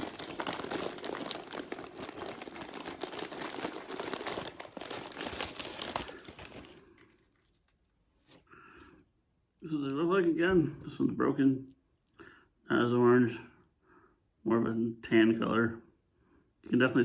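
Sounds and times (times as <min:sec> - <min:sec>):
plastic snack bag crinkling: 0:00.0 - 0:08.3.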